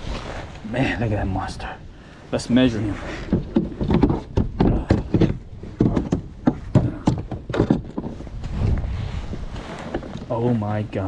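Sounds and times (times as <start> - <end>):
knocks and thumps on kayak hull: 3.2 - 8.3.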